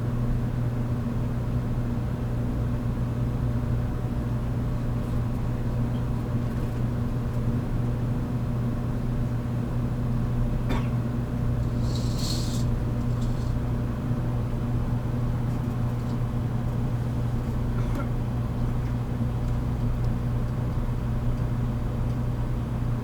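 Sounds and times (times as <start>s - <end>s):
short hiss: 11.6s - 13.6s
train equipment hum: 11.6s - 13.7s.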